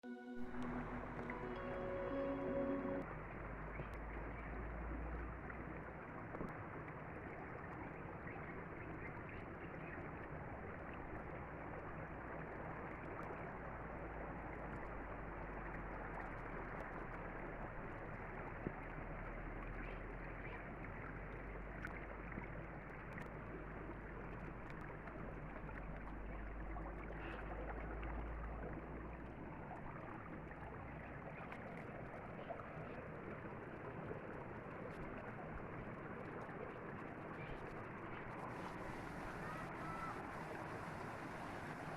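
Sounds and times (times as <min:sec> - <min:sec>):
river water rushing: 0:00.4 - 0:05.4, 0:33.5 - 0:41.9.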